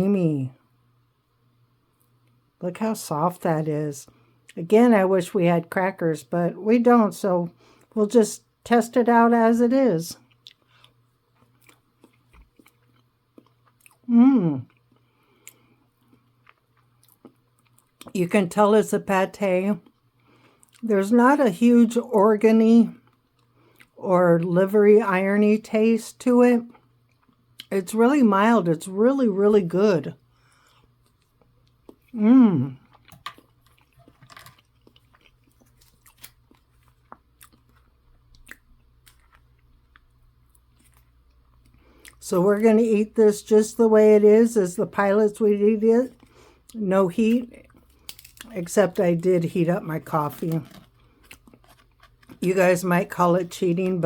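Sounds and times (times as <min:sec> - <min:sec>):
person chewing food: 0:10.2 - 0:18.1, 0:23.0 - 0:24.0, 0:26.7 - 0:27.7, 0:30.4 - 0:42.2, 0:50.3 - 0:52.4
person humming mmm: 0:14.1 - 0:14.7, 0:32.2 - 0:32.8.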